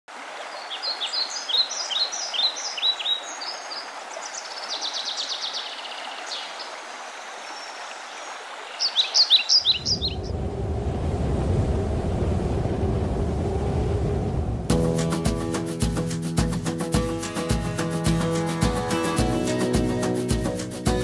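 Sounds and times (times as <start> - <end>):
wild birds chirping: 0.4 - 10.3
low rumble: 10.0 - 14.7.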